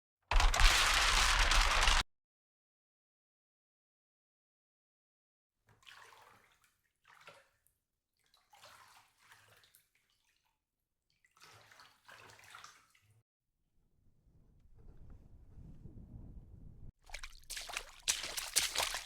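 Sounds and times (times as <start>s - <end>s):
low rumble: 14.0s - 16.9s
water sloshing: 17.0s - 19.0s.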